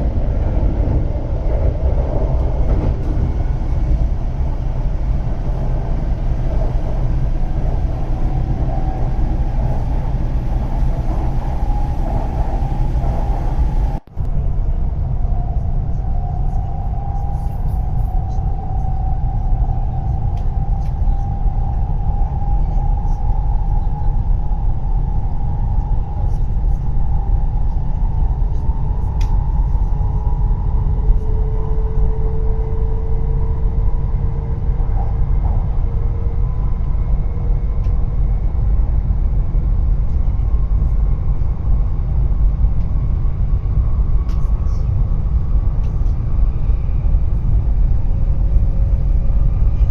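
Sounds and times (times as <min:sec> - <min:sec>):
train cabin rumble: 0:00.0 - 0:49.9.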